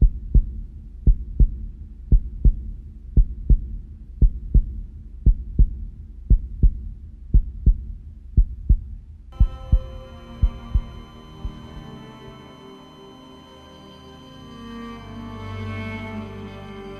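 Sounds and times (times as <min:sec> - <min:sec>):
heartbeat double thump: 0:00.0 - 0:11.8
sustained music chord: 0:09.4 - 0:16.9.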